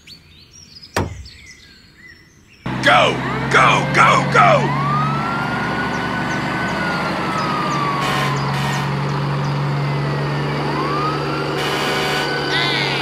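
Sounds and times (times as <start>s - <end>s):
fire engine siren wailing: 2.7s - 13.0s
low engine hum: 2.7s - 13.0s.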